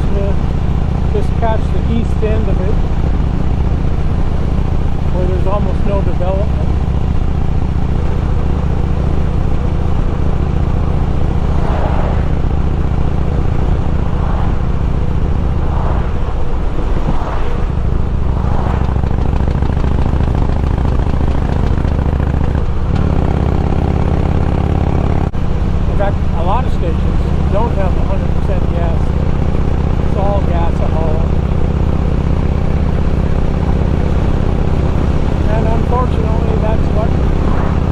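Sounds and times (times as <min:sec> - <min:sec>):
motorcycle engine and exhaust: 0:00.0 - 0:37.9
wind noise: 0:06.6 - 0:23.4, 0:31.3 - 0:37.9.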